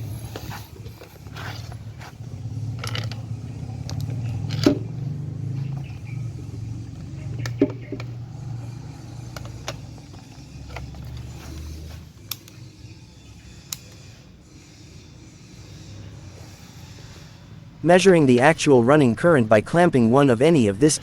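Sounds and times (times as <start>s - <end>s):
refrigerator compressor hum: 0.0s - 20.6s
handling clicks: 2.7s - 5.0s, 9.1s - 12.7s.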